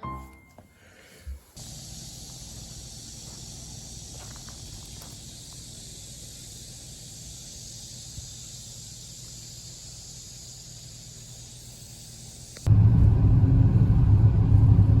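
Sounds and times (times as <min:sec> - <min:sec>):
high insect-like hiss: 0:01.4 - 0:12.7
low rumble: 0:12.7 - 0:15.0.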